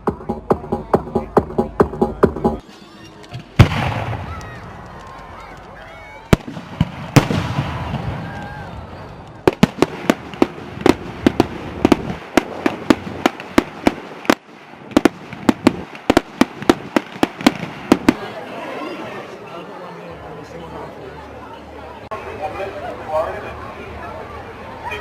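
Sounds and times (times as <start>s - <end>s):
firework bangs: 3.5s - 5.0s, 6.3s - 18.4s
rapid firework cracks: 3.6s - 18.3s.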